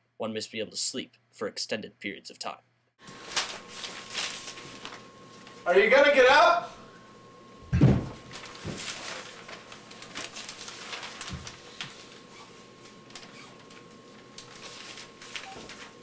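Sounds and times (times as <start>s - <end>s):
cassette tape hum and hiss: 3.0s - 16.0s
thump: 7.7s - 8.2s.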